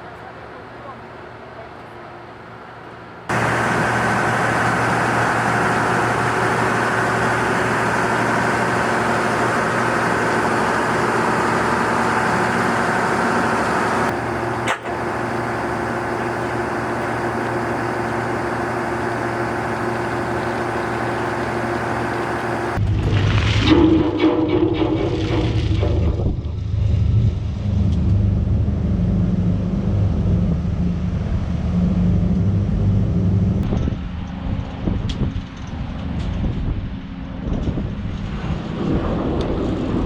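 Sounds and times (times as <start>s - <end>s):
heavy machinery engine humming: 3.3s - 34.4s.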